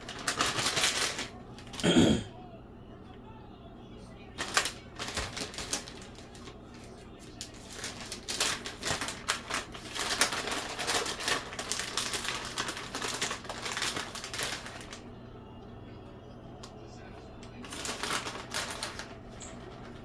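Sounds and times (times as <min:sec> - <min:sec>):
plastic packaging crinkling: 0:00.0 - 0:02.0, 0:04.4 - 0:15.0, 0:17.2 - 0:20.0
steady low hum: 0:00.0 - 0:20.0.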